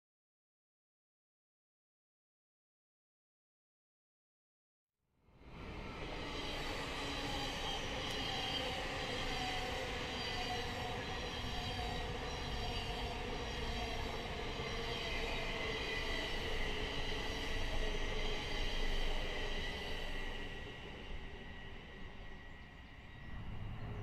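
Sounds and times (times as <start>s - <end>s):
train rumbling on rails: 5.4s - 24.0s.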